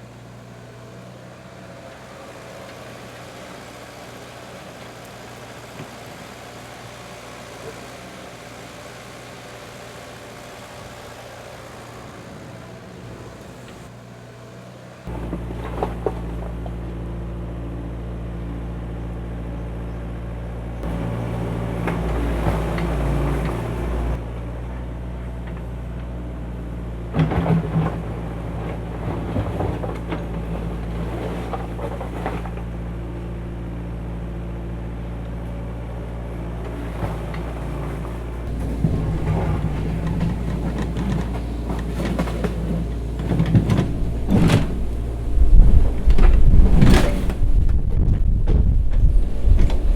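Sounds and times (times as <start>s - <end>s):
heavy machinery engine droning: 0.0s - 49.9s
metallic knocks and clanks: 38.5s - 49.9s.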